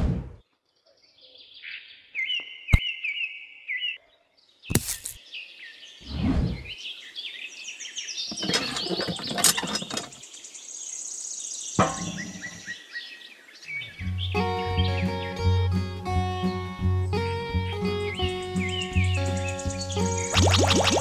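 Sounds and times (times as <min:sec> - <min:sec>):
birds chirping: 0:00.5 - 0:21.0
high bird trill: 0:17.7 - 0:21.0.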